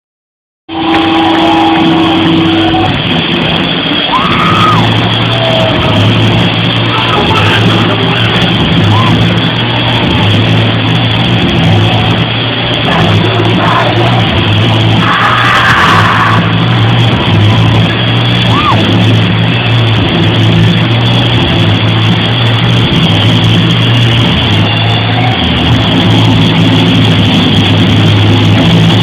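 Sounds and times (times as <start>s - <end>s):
voices sliding in pitch: 0.7s - 19.7s.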